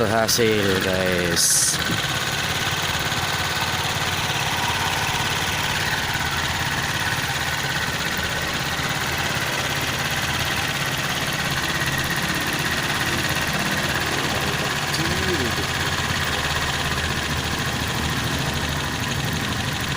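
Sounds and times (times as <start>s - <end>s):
engine idling: 0.0s - 19.9s.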